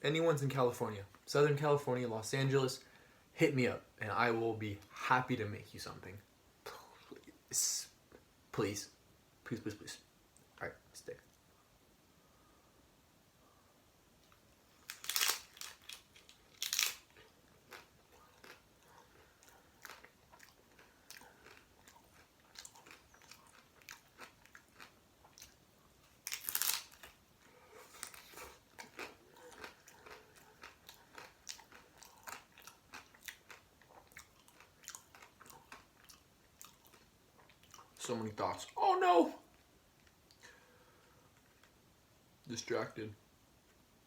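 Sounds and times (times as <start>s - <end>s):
wet chewing clicks and smacks: 15.6s - 25.6s, 28.1s - 38.0s.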